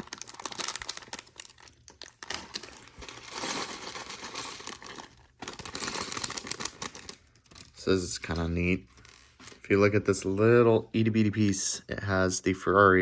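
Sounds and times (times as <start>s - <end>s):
plastic bags crinkling: 0.0s - 9.7s.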